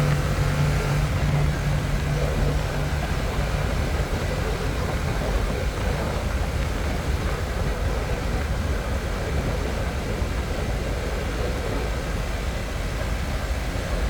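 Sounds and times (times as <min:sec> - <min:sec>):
motorcycle engine cruising: 0:00.0 - 0:07.0
wind rush on microphone: 0:00.0 - 0:14.0.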